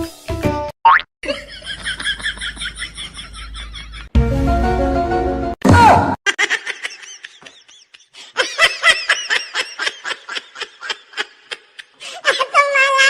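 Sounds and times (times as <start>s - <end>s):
laughter in quick bursts: 1.2s - 4.1s, 6.3s - 12.0s.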